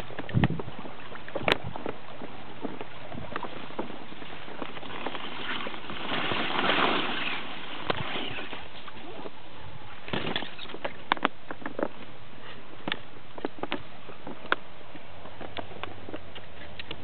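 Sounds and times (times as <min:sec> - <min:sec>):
water rushing: 0:00.0 - 0:11.1.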